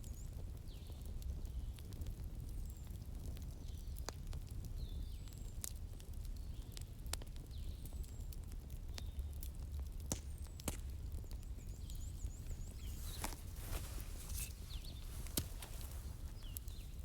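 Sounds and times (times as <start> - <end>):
wood fire crackling and popping: 0.0 - 17.0
bird chirping: 11.6 - 17.0.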